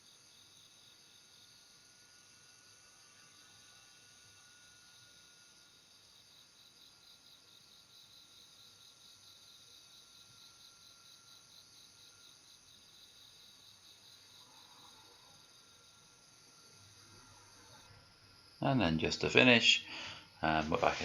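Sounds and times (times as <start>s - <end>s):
insect chirping: 0.0s - 21.0s
faint microphone hiss: 18.6s - 21.0s.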